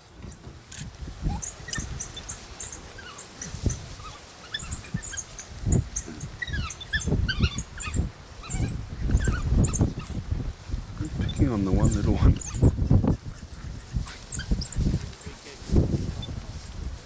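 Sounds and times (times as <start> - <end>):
pups squeaking and twittering: 1.2 - 10.3, 11.0 - 15.3.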